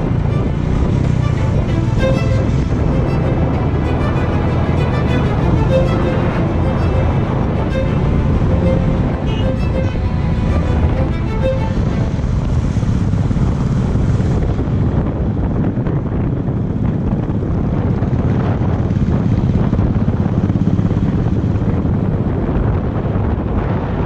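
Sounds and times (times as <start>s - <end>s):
motorcycle engine running: 0.0s - 3.7s, 11.9s - 22.4s
wind buffeting microphone: 0.0s - 24.0s.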